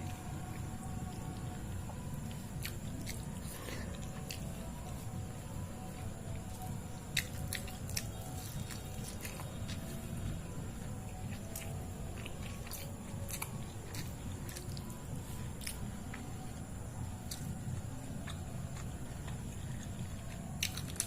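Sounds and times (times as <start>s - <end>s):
low background hum: 0.0s - 21.0s
wet chewing of food: 0.0s - 21.0s.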